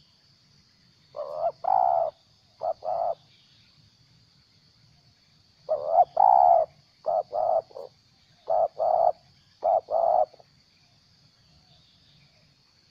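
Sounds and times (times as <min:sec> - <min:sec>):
dove cooing: 0:01.2 - 0:03.2, 0:05.7 - 0:10.4.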